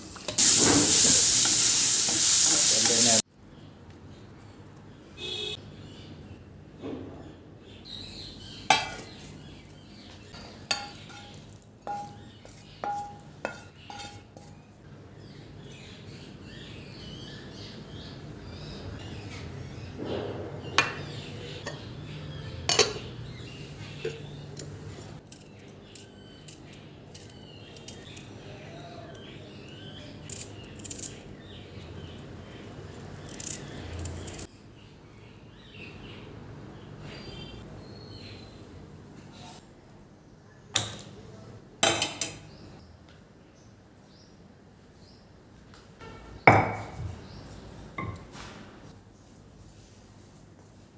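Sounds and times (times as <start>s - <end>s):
birds chirping faintly: 0.4s - 50.6s
utensils clinking against dishes: 10.4s - 14.6s, 22.6s - 23.2s, 23.9s - 28.2s.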